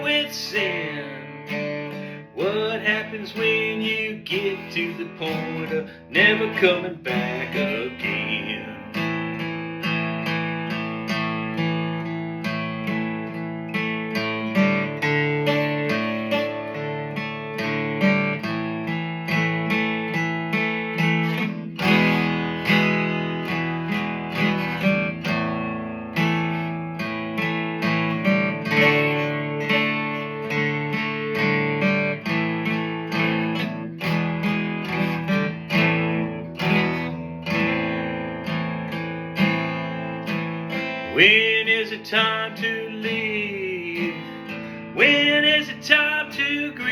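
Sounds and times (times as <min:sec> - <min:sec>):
acoustic guitar strumming: 0:00.0 - 0:46.9.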